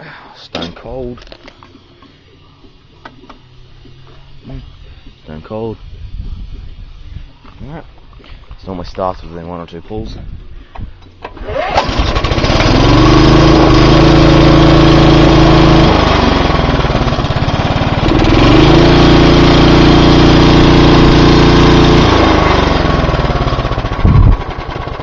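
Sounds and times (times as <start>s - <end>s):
lawn mower engine running: 10.5s - 25.0s.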